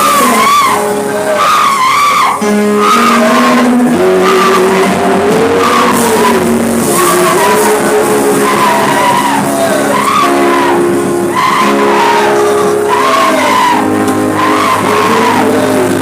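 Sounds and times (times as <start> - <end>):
high voices singing: 0.0 - 16.0
sustained keyboard chords: 0.0 - 16.0.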